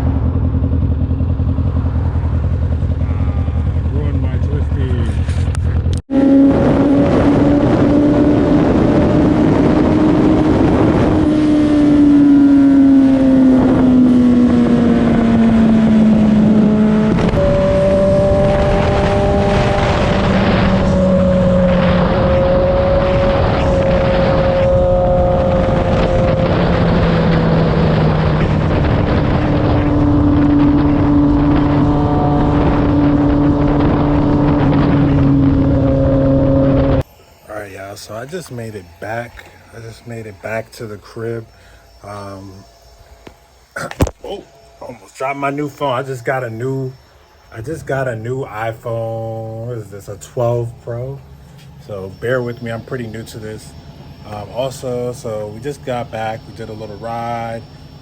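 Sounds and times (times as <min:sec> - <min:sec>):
motorcycle engine running: 0:00.0 - 0:37.1
wind noise: 0:00.0 - 0:37.1.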